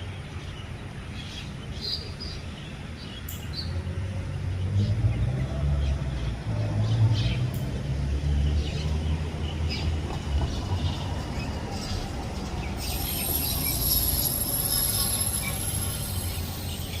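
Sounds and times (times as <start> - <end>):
high-pitched shrill drone: 12.8 - 17.0.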